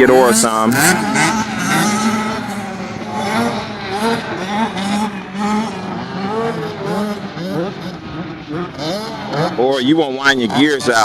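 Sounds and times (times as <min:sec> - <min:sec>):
dirt bike engine revving: 0:00.0 - 0:09.5.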